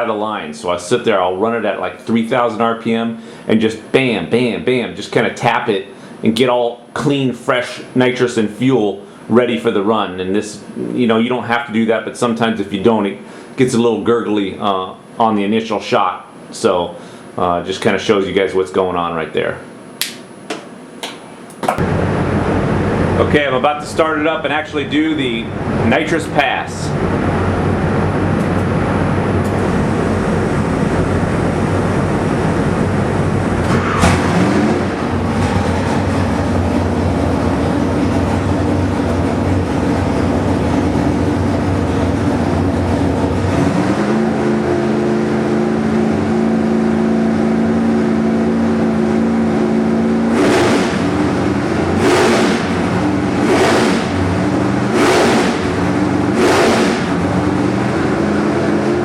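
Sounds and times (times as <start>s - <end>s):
car engine running: 21.8s - 59.0s.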